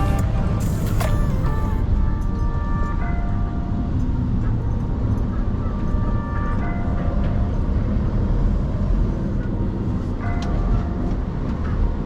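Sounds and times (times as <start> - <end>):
short high-pitched tones: 0.0 - 1.8
truck engine and road rumble: 0.0 - 12.0.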